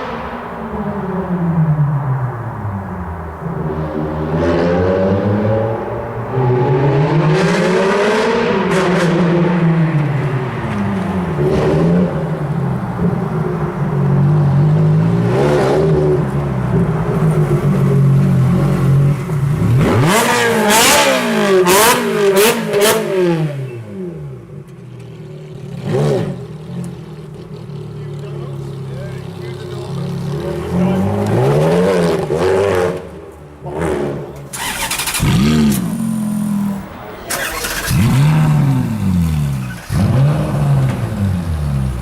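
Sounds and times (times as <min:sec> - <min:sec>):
car engine revving: 0:00.0 - 0:42.0
exhaust cracks: 0:32.2 - 0:42.0.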